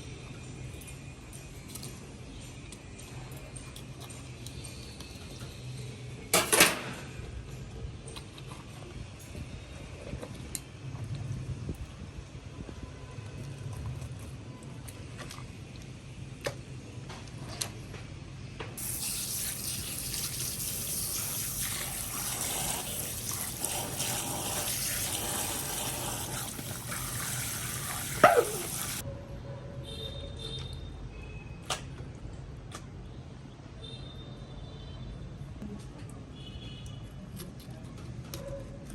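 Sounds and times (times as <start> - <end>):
water running: 18.8 - 29.0.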